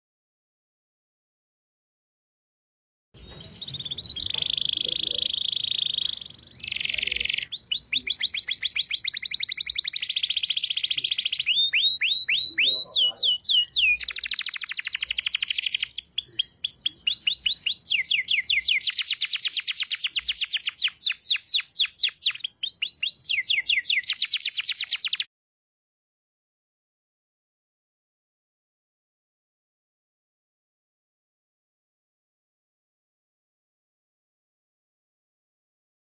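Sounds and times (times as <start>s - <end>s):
songbird rattling song: 3.2s - 25.3s.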